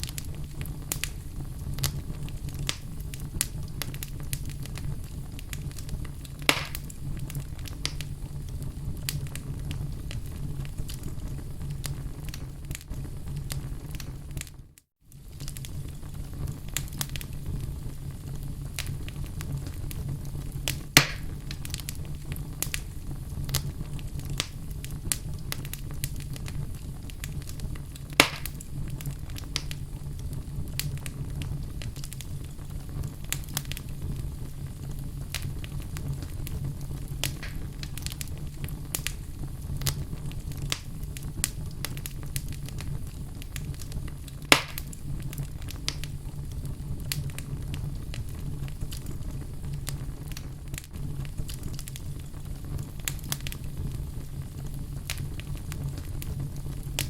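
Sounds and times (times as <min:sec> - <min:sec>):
sharp pops from burning wood: 0:00.0 - 0:01.2, 0:01.8 - 0:08.1, 0:18.8 - 0:20.0, 0:20.6 - 0:29.8, 0:33.3 - 0:34.0, 0:35.2 - 0:39.2, 0:39.8 - 0:53.8, 0:55.0 - 0:57.0
fire crackling: 0:00.0 - 0:57.0
wood fire rumbling: 0:00.0 - 0:57.0.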